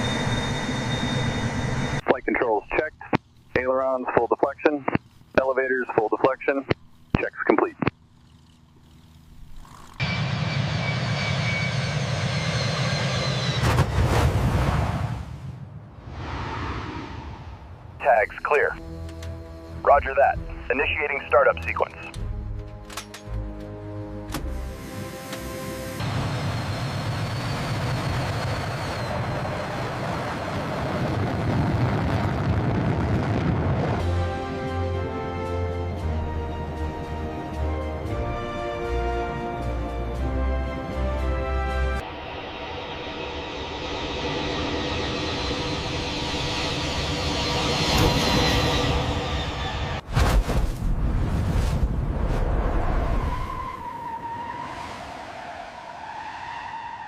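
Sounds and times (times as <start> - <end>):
faint high whine: 0.0 - 13.7
jet engine running: 0.0 - 15.2, 16.1 - 22.1, 24.5 - 50.1.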